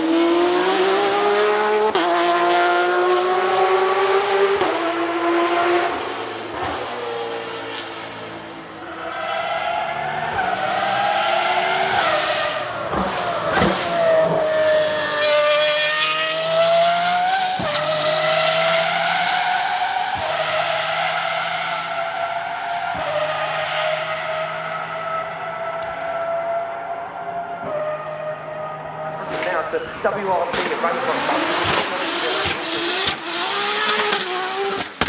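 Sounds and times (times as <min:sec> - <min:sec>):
car engine running hard: 0:00.0 - 0:09.0, 0:22.8 - 0:35.0.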